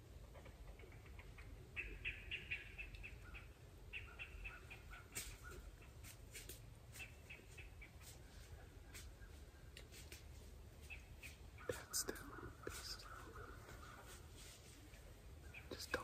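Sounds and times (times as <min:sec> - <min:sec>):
bird chattering: 0:00.4 - 0:06.0.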